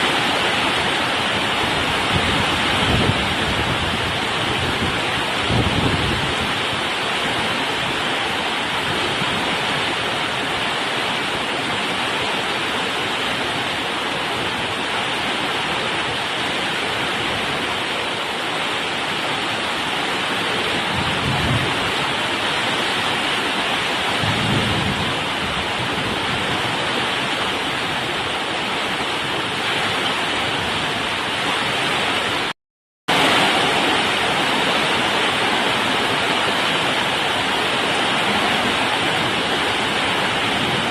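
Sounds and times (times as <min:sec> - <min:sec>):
heavy rain pouring: 0:00.0 - 0:40.9
low thunder rumbles: 0:24.2 - 0:26.8.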